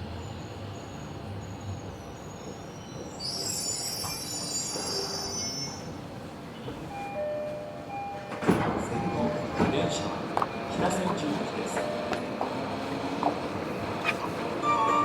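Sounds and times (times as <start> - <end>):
train wheels squealing: 0.0 - 6.0
train running rumble: 8.4 - 15.0.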